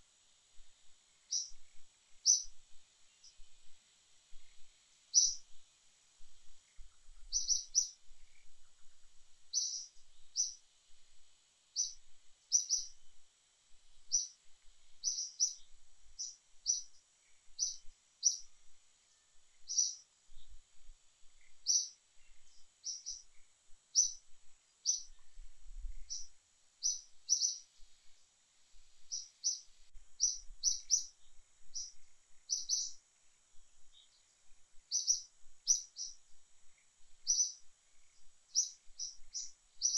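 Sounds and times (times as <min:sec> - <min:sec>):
faint high hiss: 0:00.0 - 0:39.9
bird chirping: 0:01.3 - 0:03.5, 0:04.4 - 0:05.6, 0:06.7 - 0:10.6, 0:11.8 - 0:13.0, 0:14.1 - 0:14.4, 0:15.0 - 0:18.5, 0:19.1 - 0:20.6, 0:21.4 - 0:24.2, 0:24.8 - 0:27.8, 0:29.0 - 0:33.0, 0:33.8 - 0:36.2, 0:37.2 - 0:39.9.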